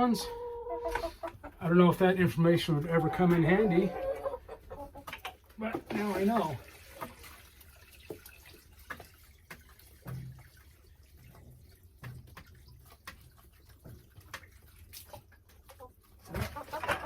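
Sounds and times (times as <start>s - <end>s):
water dripping into drum: 4.9s - 17.0s.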